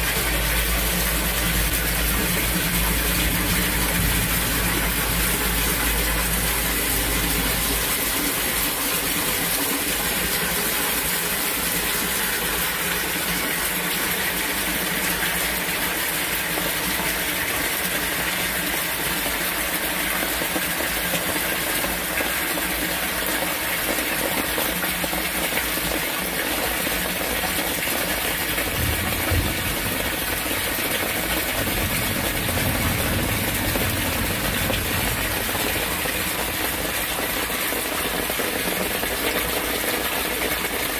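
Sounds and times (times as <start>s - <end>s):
low hum: 0.0s - 8.9s, 31.4s - 37.4s
storm water rushing: 0.0s - 40.9s
torrential rain pouring: 0.0s - 40.9s.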